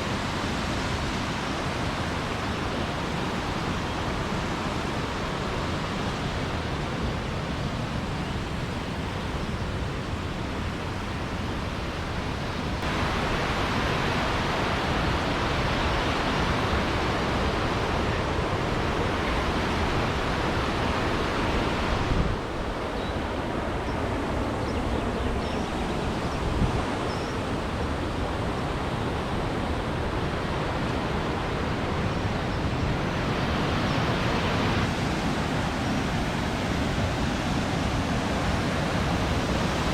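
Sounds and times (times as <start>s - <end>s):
waterfall rushing: 10.9s - 22.7s, 29.0s - 39.9s.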